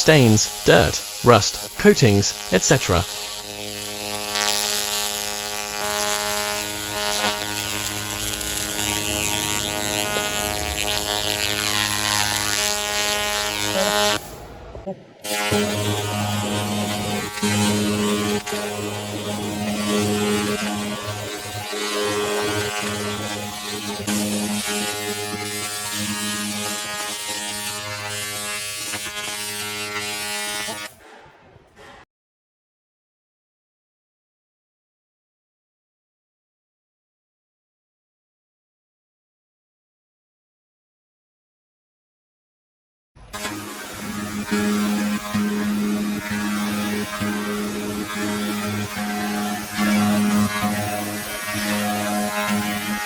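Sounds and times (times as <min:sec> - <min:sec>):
laser machine buzzing hum: 0:00.4 - 0:14.3, 0:15.3 - 0:30.9, 0:43.4 - 0:53.0.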